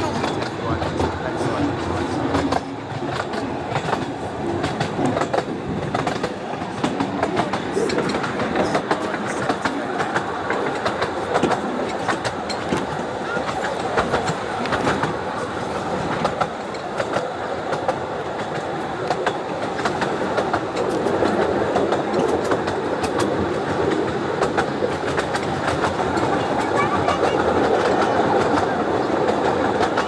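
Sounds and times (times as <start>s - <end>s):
train wheels rumbling: 0.0s - 30.0s
wheels clicking over rail joints: 0.0s - 30.0s.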